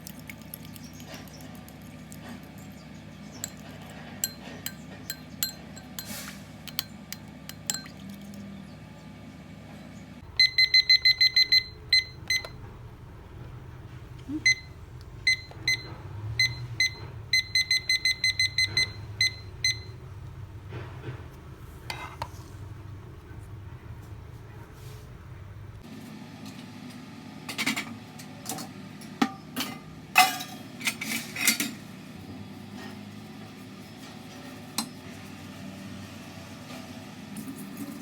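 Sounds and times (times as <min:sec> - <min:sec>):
kitchen things clinking: 0:02.6 - 0:08.0, 0:28.5 - 0:31.9
short electronic beeps: 0:10.4 - 0:12.6, 0:15.3 - 0:19.9.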